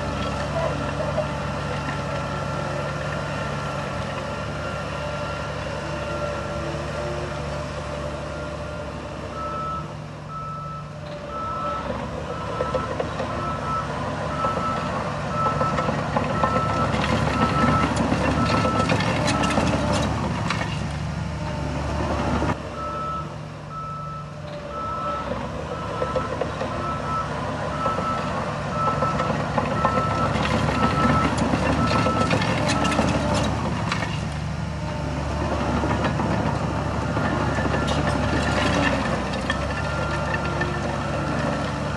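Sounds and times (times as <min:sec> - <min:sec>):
diesel engine running: 0:00.0 - 0:41.9
reversing alarm beeping: 0:08.3 - 0:19.6, 0:22.8 - 0:33.2
clanking and rattling: 0:15.4 - 0:21.0, 0:28.8 - 0:34.4.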